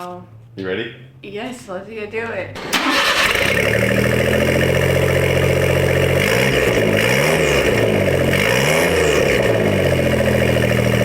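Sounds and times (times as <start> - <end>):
truck engine idling and revving: 2.6 - 11.0.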